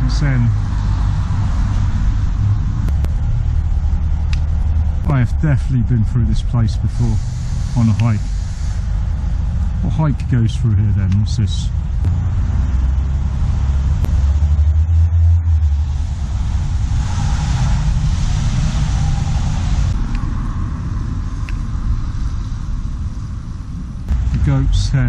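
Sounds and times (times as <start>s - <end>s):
traffic rumble: 0.0s - 25.0s
passing car tyre hiss: 6.8s - 9.5s, 15.7s - 23.5s.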